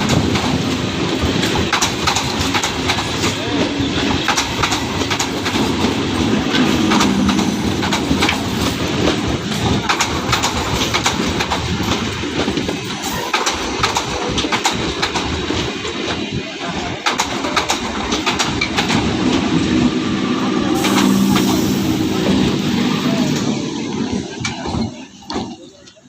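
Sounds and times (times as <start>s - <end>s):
wheels clicking over rail joints: 0.0s - 19.5s
train rumbling on track: 0.0s - 26.0s.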